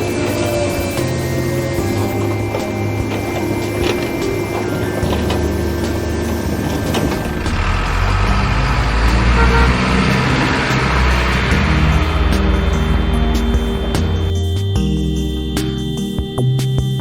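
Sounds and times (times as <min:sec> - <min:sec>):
truck engine running: 0:00.0 - 0:16.1.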